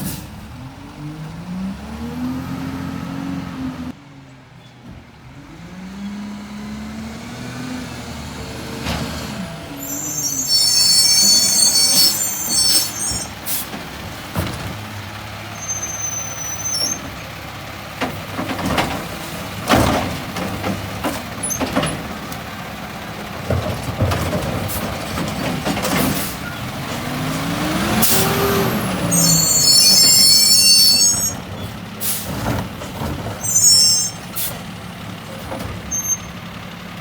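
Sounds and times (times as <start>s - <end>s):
diesel engine revving: 0.0s - 4.0s, 5.2s - 37.0s
high squeal: 9.7s - 13.4s, 15.5s - 17.1s, 28.0s - 31.4s, 33.4s - 34.4s.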